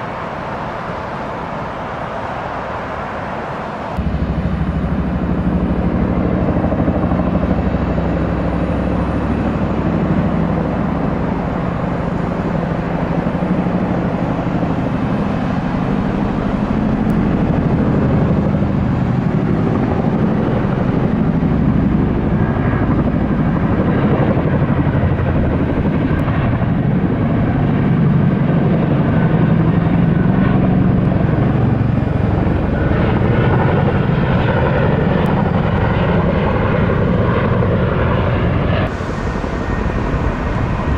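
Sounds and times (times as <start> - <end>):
aircraft engines rumbling: 0.0 - 40.9
faint high whine: 38.9 - 40.9.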